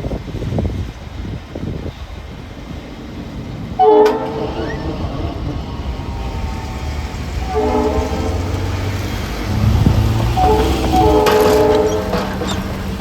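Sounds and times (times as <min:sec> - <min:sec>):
train rumbling on rails: 0:00.0 - 0:13.0
train air horn blasts: 0:03.8 - 0:13.0.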